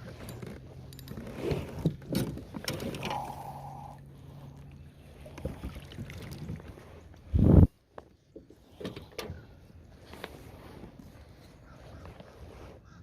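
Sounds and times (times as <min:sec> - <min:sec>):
handling clicks and knocks: 0:00.0 - 0:03.1.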